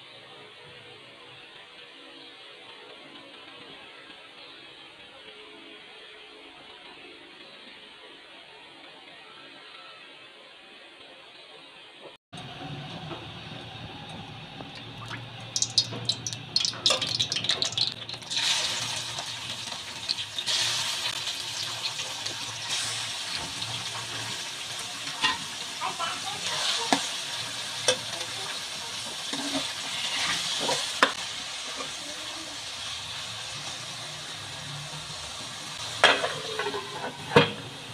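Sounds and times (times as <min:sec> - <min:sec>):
chicken sizzling in hot oil: 0:12.6 - 0:37.9
ladle scraping a pot: 0:36.0 - 0:37.4.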